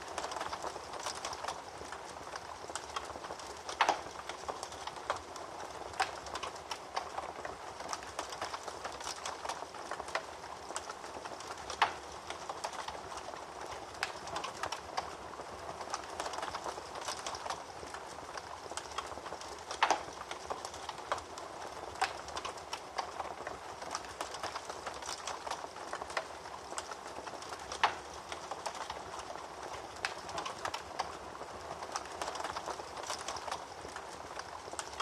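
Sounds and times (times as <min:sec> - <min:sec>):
wood fire crackling: 0:00.0 - 0:35.0
fire pops: 0:15.9 - 0:21.3.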